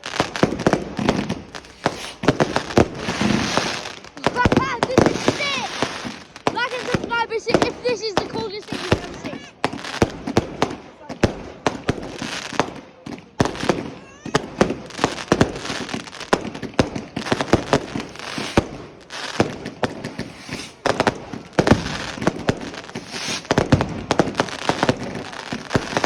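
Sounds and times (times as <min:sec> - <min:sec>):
hissing crackle: 0:00.0 - 0:10.4, 0:13.4 - 0:26.0
fireworks bangs and cracks: 0:00.0 - 0:26.0.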